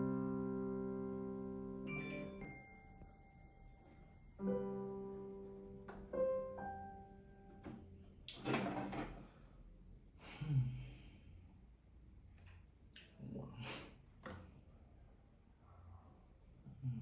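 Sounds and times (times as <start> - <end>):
slow soft piano music: 0.0 - 8.3.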